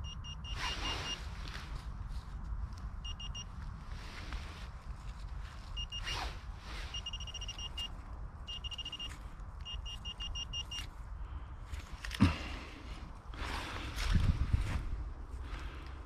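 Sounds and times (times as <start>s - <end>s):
metal detector beeping: 0.0s - 1.3s, 3.0s - 3.5s, 5.7s - 10.9s.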